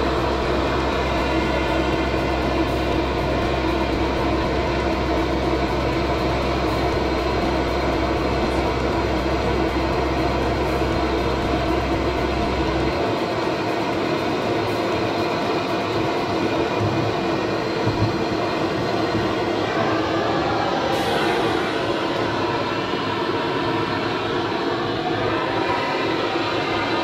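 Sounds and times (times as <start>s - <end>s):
low rumble: 0.0s - 13.4s.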